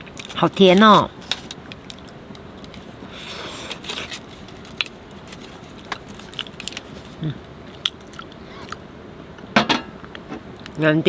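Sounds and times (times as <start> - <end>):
rustle: 0.1 - 8.8
chewing mouth sounds: 5.8 - 8.8.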